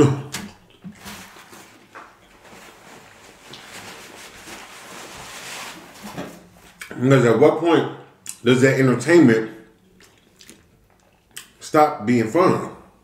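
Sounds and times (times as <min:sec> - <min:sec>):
paper napkin rustling: 0:00.9 - 0:06.8
man chewing: 0:09.8 - 0:11.6.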